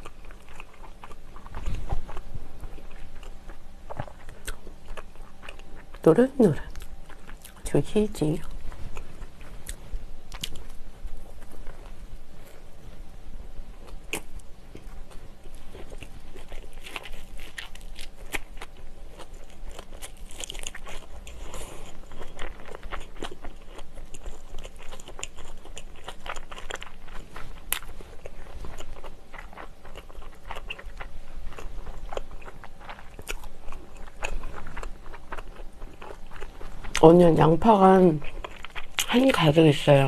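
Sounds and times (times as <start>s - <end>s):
person chewing: 0.0s - 12.8s, 13.8s - 39.5s.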